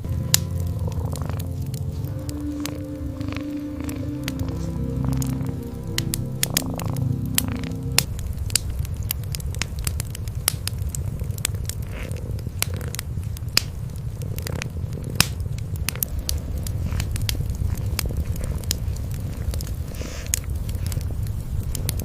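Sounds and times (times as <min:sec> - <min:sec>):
cats purring: 0:00.0 - 0:22.0
wood fire crackling: 0:00.0 - 0:22.0.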